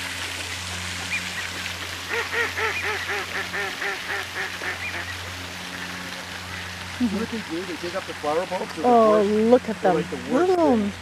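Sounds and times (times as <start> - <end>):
ducks quacking: 2.1 - 8.1.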